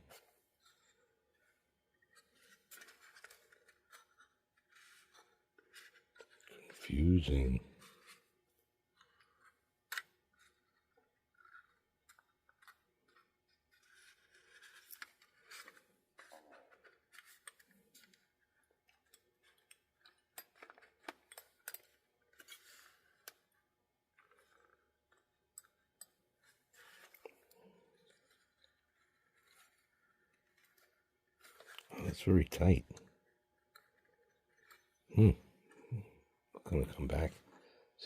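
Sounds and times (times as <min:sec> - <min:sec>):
small tool clicking and scraping: 0:00.1 - 0:06.8, 0:08.9 - 0:32.0, 0:32.9 - 0:35.1.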